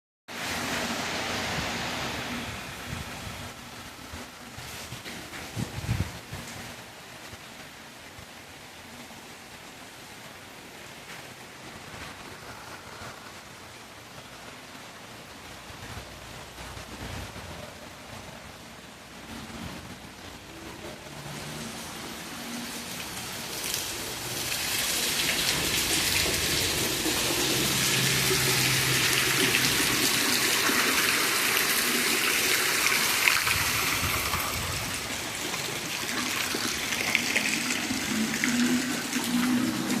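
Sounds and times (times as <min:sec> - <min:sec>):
heavy rain pouring: 0:00.3 - 0:40.0
raindrops ticking: 0:22.5 - 0:30.8.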